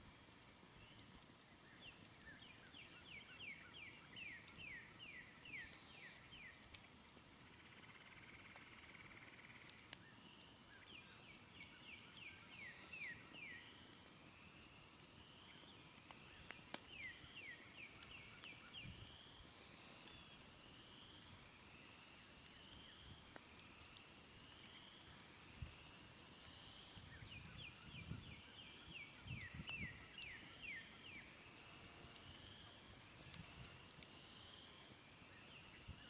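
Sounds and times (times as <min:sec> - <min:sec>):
campfire crackling and popping: 0:00.0 - 0:36.0
birds singing: 0:09.0 - 0:14.0, 0:14.8 - 0:20.5, 0:26.7 - 0:31.4.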